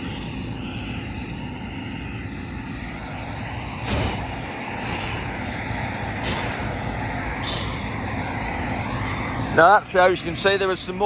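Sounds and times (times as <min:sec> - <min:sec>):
combine harvester droning: 0:00.0 - 0:11.0
short puffs of breath: 0:06.2 - 0:06.8.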